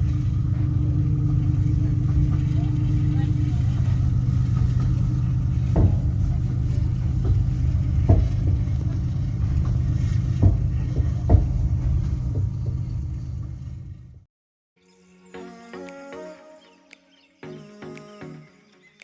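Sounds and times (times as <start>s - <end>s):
sharp knocks: 0.0s - 14.2s
train rumbling on rails: 0.0s - 14.2s.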